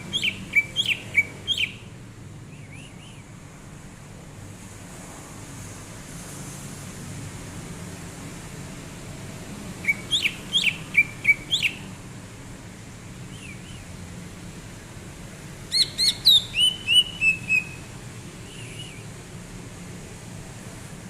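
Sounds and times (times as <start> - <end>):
bird whistling sharp notes: 0.1 - 1.8, 9.8 - 11.8, 15.7 - 17.8, 18.4 - 19.1.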